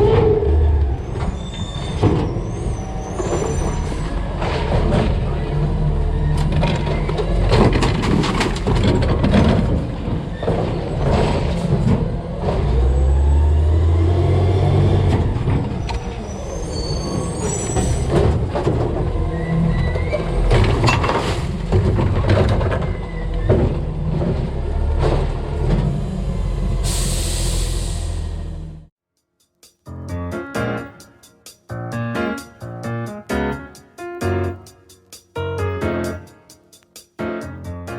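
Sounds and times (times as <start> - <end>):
metal clanks and thuds: 1.1 - 2.6, 6.4 - 12.8, 17.8 - 19.2, 19.9 - 25.9
truck engine revving: 10.8 - 20.8
air hiss: 26.9 - 28.2.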